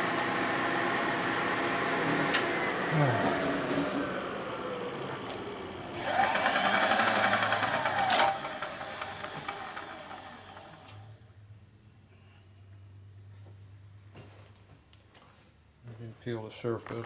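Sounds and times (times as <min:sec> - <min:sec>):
machine hissing and whirring: 0:01.9 - 0:11.2.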